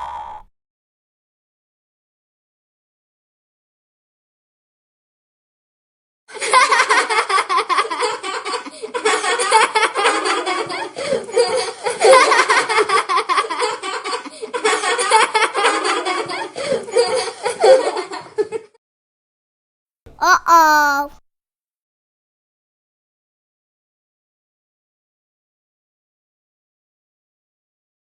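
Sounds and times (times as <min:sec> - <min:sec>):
people laughing: 0:06.4 - 0:18.3.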